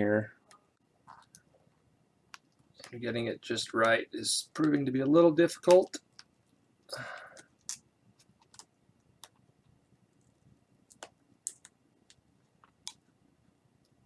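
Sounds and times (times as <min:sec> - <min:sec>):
small clicks and taps: 0:03.8 - 0:06.3, 0:07.2 - 0:09.5, 0:10.2 - 0:13.1.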